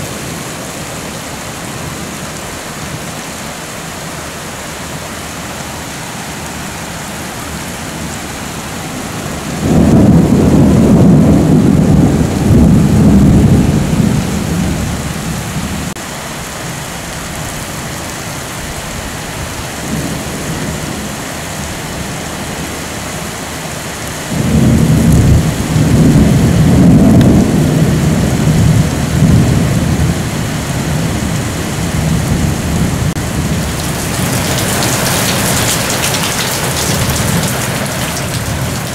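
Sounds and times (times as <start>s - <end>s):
steady rain: 0.0s - 38.9s
low rolls of thunder: 9.4s - 15.9s, 24.3s - 38.9s.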